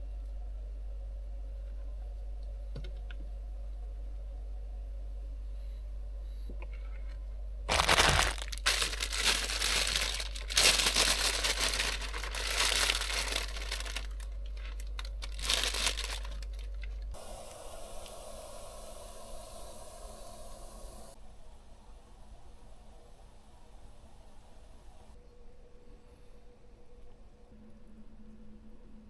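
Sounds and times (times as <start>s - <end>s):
crinkling and tearing: 7.7s - 17.1s
steady hiss: 17.1s - 25.2s.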